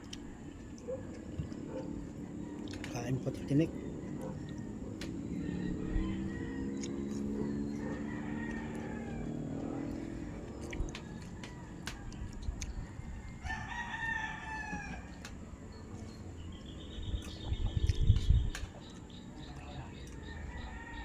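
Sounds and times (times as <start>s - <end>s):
rooster crowing: 0.1s - 15.3s, 19.6s - 21.0s.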